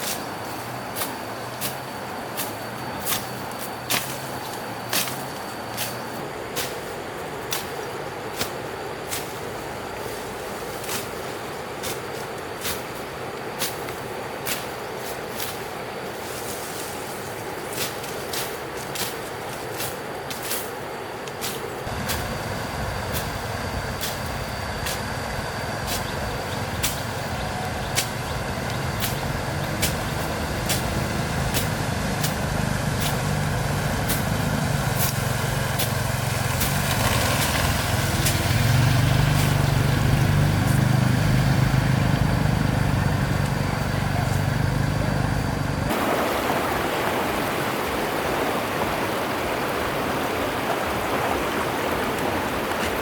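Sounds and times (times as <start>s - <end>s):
engine running: 21.9s - 53.0s
running water: 45.9s - 53.0s.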